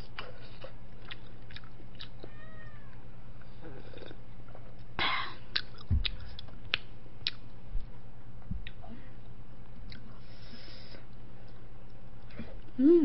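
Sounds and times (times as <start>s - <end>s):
steady low hum: 0.0s - 13.0s
chewing with wet mouth clicks: 0.2s - 2.3s, 5.5s - 7.6s, 9.7s - 10.1s
soft low thumps: 5.8s - 6.3s, 7.6s - 9.0s.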